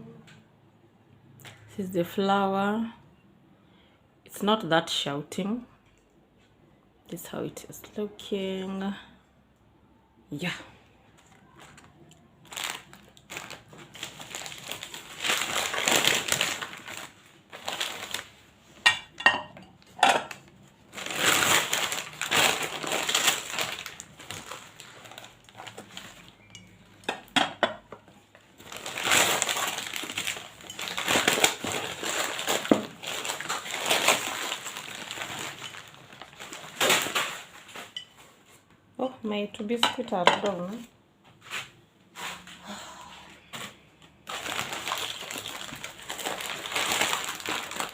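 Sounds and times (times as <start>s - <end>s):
packaging rustling and crinkling: 11.2s - 18.8s, 20.4s - 27.0s, 28.3s - 38.3s, 43.7s - 47.9s
dishes clinking: 18.8s - 20.4s.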